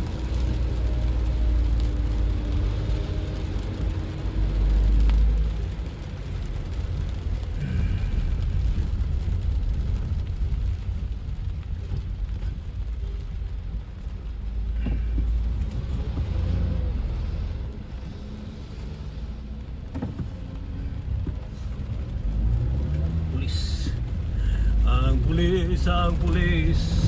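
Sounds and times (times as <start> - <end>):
car engine and tyres rumbling: 0.0 - 27.0.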